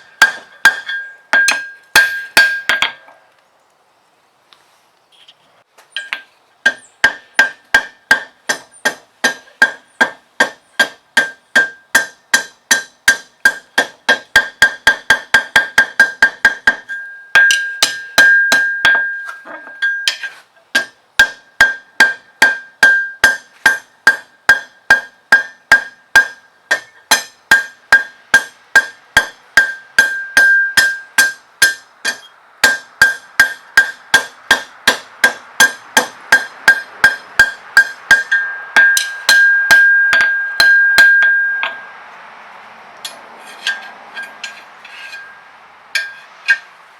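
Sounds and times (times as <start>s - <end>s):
anvil ringing: 0.0s - 3.0s, 14.6s - 42.0s, 46.0s - 46.6s
hammer striking steel on anvil: 0.0s - 3.0s, 6.0s - 41.9s, 43.1s - 45.4s, 46.0s - 46.7s.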